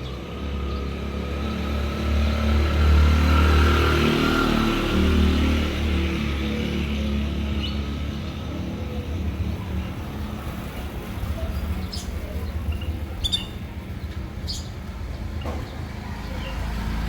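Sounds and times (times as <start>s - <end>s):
road traffic rumble: 0.0s - 17.0s
small birds chirping: 5.9s - 17.0s.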